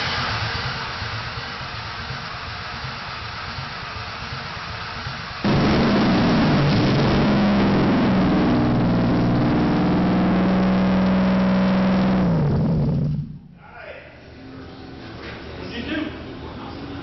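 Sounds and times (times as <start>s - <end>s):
car engine starting and revving: 5.4s - 13.5s.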